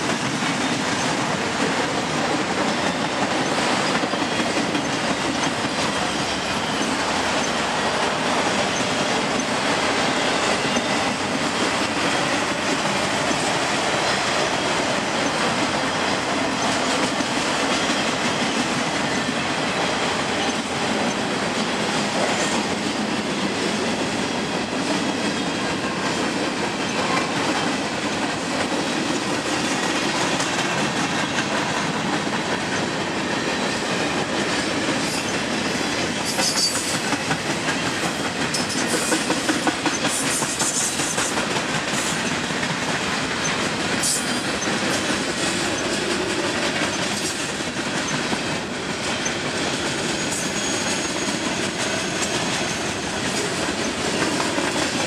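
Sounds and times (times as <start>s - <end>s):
train wheels clickety-clack: 0.0s - 55.0s
high-pitched wheel squeals: 50.2s - 51.3s.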